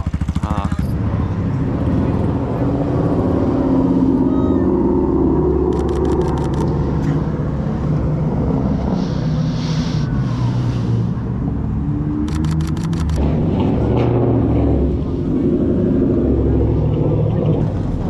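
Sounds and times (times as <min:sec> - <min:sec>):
vehicle engine rumbling: 0:00.0 - 0:18.0
sharp clicks: 0:05.7 - 0:06.8, 0:12.2 - 0:13.2.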